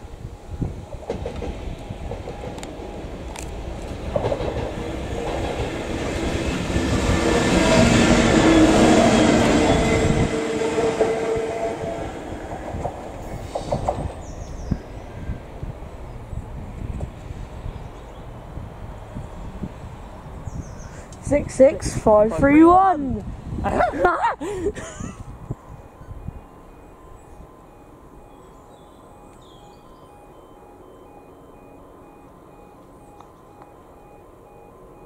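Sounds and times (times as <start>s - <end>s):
train wheels rumbling on rails: 0.0s - 24.0s
train engine tones: 0.0s - 35.0s.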